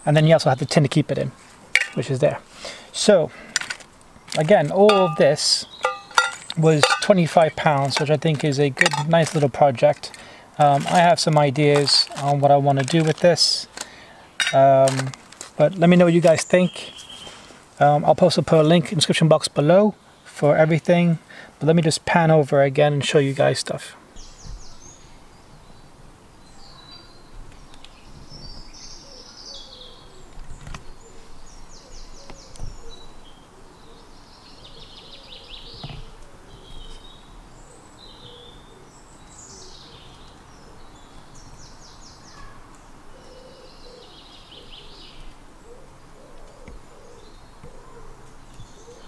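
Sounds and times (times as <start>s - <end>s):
birds trilling: 1.2s - 10.8s, 28.4s - 49.0s
low bird calls: 24.1s - 49.0s.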